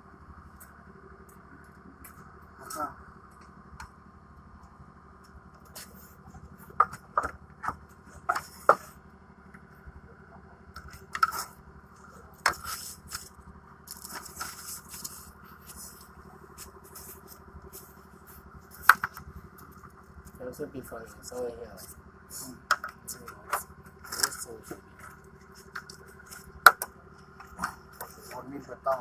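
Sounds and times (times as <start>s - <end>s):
steady low hum: 0.0s - 29.0s
sharp clicks and scrapes: 10.8s - 11.6s, 12.4s - 13.3s, 13.9s - 19.8s, 22.3s - 28.4s.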